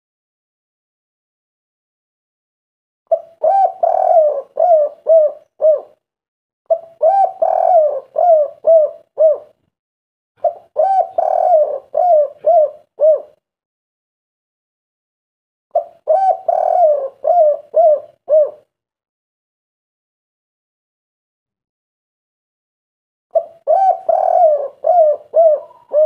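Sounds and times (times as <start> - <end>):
dove cooing: 3.1 - 6.0, 6.7 - 9.6, 10.4 - 13.4, 15.7 - 18.7, 23.3 - 26.0.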